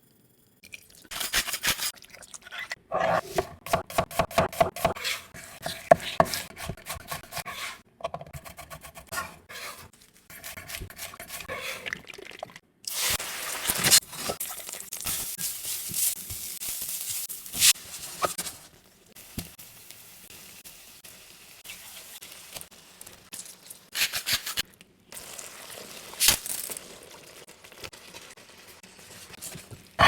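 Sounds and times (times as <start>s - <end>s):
food sizzling in a pan: 12.9s - 23.9s.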